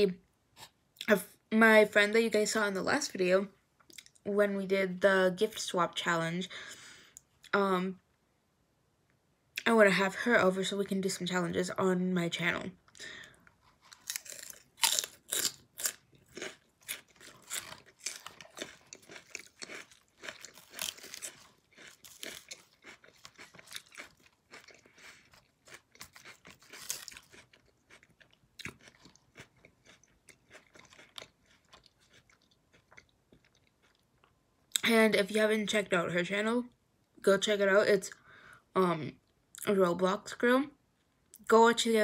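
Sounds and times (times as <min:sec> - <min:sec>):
chewing crunchy lettuce: 0:13.6 - 0:34.8.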